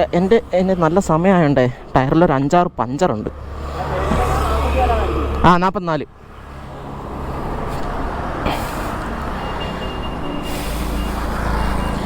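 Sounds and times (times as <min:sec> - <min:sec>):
faint high-pitched beeping: 0:09.4 - 0:12.0.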